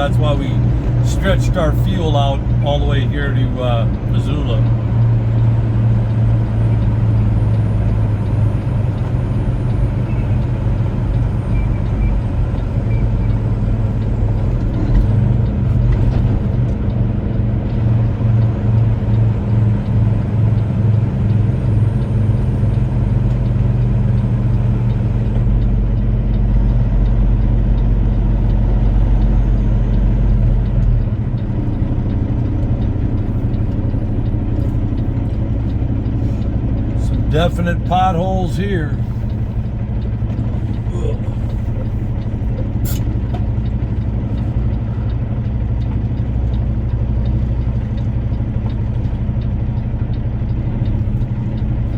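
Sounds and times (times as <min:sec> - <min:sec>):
deep rumble: 0:00.0 - 0:51.9
road noise: 0:00.0 - 0:51.9
truck diesel engine running: 0:00.0 - 0:51.9.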